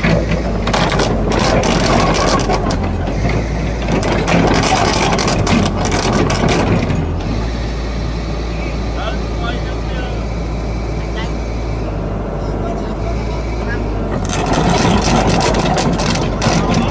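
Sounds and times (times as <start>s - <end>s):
metal clanks and knocks: 0.0s - 7.4s, 14.0s - 16.9s
diesel engine running: 0.0s - 16.9s.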